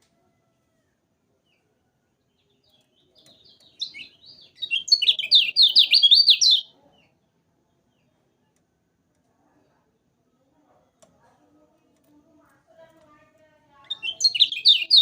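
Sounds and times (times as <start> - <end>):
white-eye bird singing: 2.3 - 7.1, 13.8 - 15.0.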